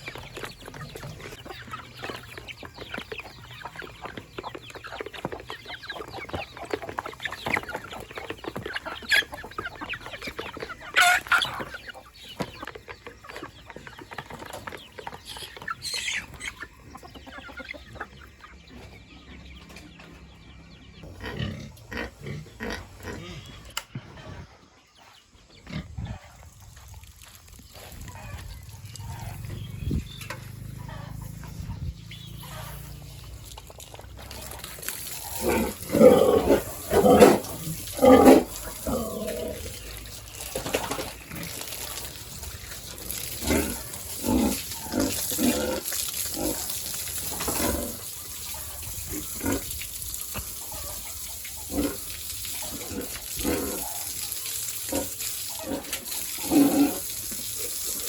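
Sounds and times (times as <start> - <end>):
pigs grunting: 21.0 - 24.7, 25.6 - 26.6, 34.2 - 58.0.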